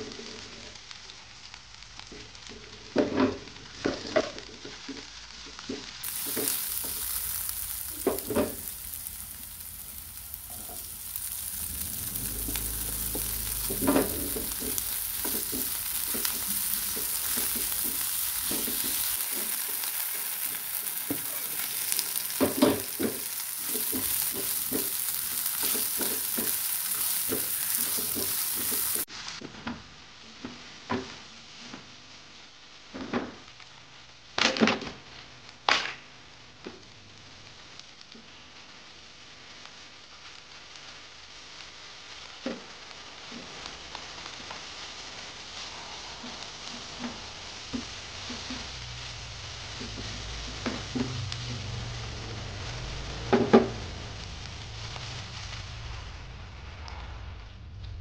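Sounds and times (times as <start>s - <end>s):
food sizzling in oil: 0.4s - 29.4s, 38.6s - 56.6s
spatula knocking and scraping pan: 6.2s - 9.9s, 12.2s - 20.2s, 22.0s - 29.0s.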